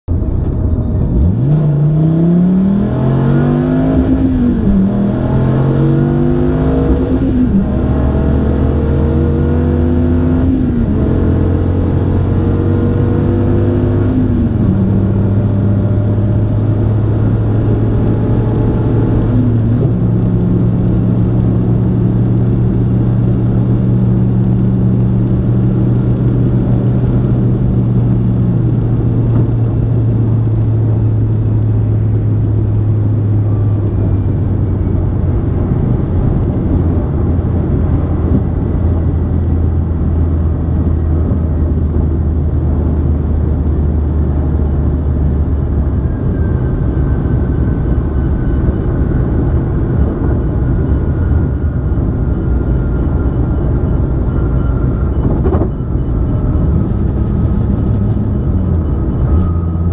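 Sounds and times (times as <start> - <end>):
car engine accelerating: 0.1 - 59.9.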